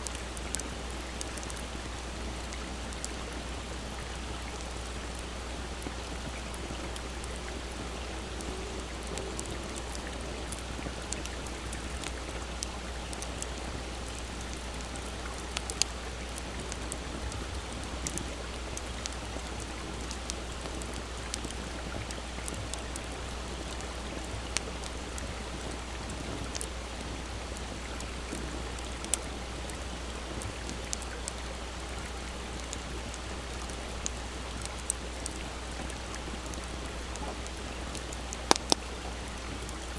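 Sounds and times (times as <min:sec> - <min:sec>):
small stream rushing: 0:00.0 - 0:39.9
wood fire crackling and popping: 0:04.0 - 0:25.6, 0:26.4 - 0:29.8, 0:34.0 - 0:39.9.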